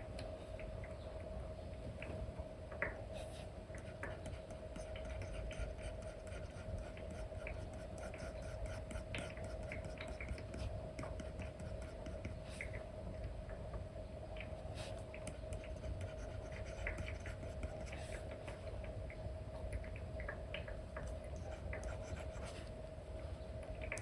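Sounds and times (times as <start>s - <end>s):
faint hum: 0.0s - 24.0s
stylus tapping and scratching screen: 3.7s - 12.8s, 14.8s - 18.2s.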